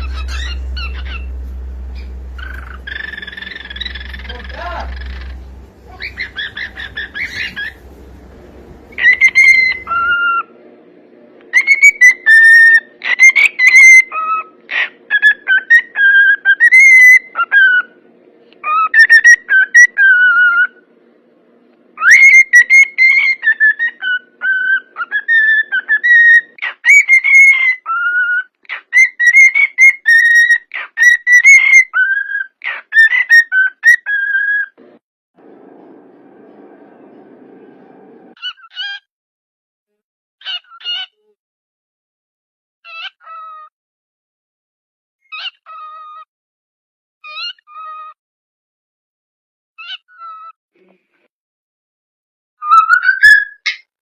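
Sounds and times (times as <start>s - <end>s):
cockatiel whistling: 0.0s - 10.5s, 11.5s - 17.9s, 22.0s - 28.4s, 52.6s - 53.8s.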